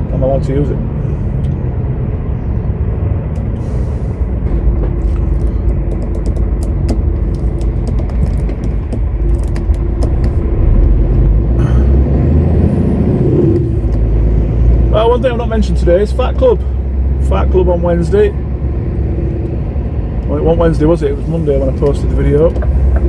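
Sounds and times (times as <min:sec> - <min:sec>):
lorry engine running: 0:00.0 - 0:23.0
clicking rattles: 0:04.4 - 0:10.4.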